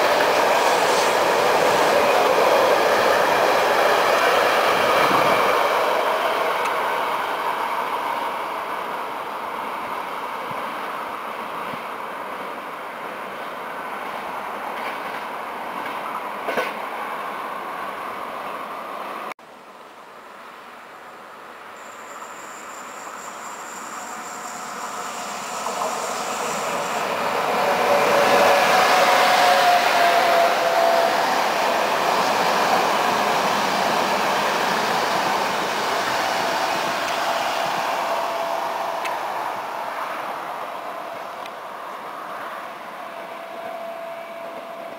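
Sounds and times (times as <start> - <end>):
train rolling past: 0.0 - 19.3, 21.7 - 44.9
thin high tone: 21.8 - 27.3.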